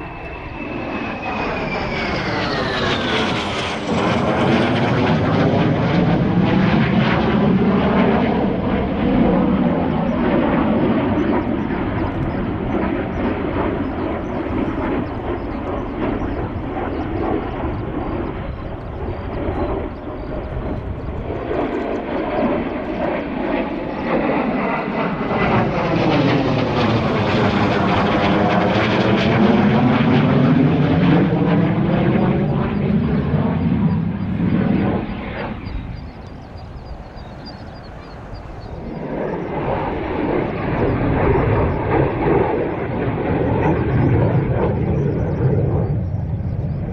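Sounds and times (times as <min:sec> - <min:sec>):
aircraft flying past: 0:00.0 - 0:46.9.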